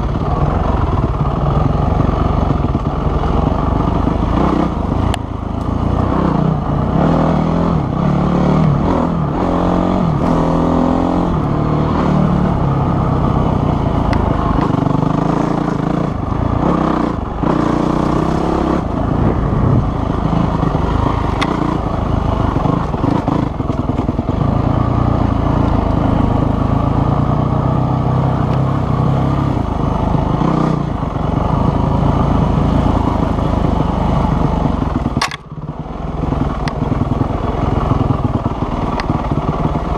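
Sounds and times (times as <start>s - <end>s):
dirt bike engine revving: 3.2s - 5.1s, 5.8s - 29.5s.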